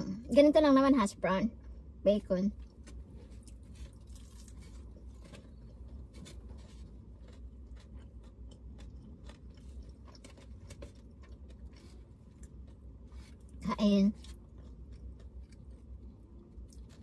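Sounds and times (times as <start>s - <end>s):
low hum: 0.0s - 17.0s
chewing and crunching food: 2.5s - 17.0s.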